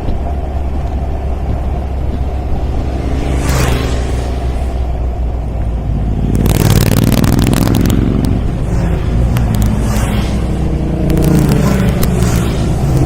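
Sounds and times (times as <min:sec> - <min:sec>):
car engine running: 0:00.0 - 0:13.0
sharp crackles: 0:05.6 - 0:13.0
scraping noises: 0:06.4 - 0:13.0.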